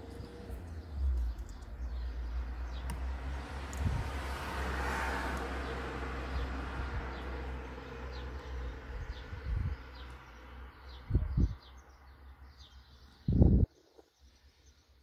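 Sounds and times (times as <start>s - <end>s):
small bird chirping: 0.0s - 4.0s.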